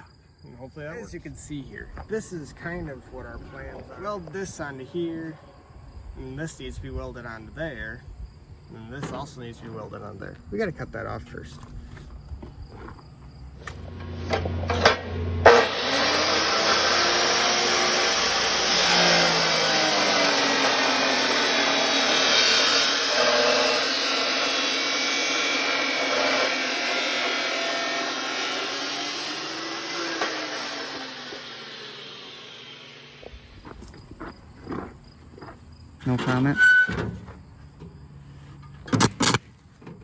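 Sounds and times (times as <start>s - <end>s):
power tool cutting metal: 13.6s - 33.5s.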